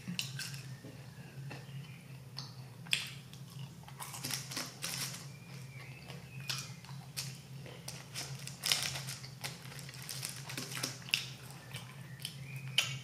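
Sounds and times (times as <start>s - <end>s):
chewing crispy fries: 1.4s - 13.0s
paper wrapper crinkling: 4.1s - 5.3s, 7.2s - 11.1s.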